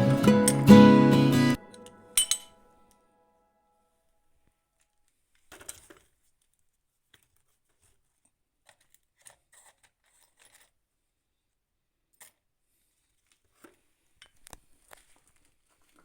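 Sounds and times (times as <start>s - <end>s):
faint rustles and clicks: 12.8s - 16.0s.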